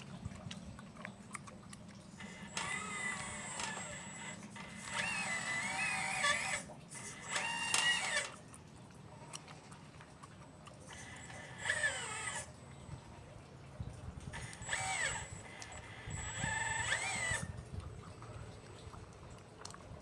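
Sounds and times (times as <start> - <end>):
model excavator motors whining: 2.1 - 8.6, 10.8 - 13.0, 14.2 - 17.6.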